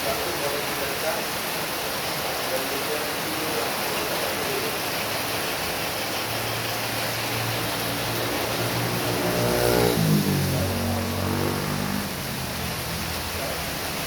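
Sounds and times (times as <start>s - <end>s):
heavy rain falling: 0.0s - 14.0s
vehicle engine hum: 5.3s - 14.0s.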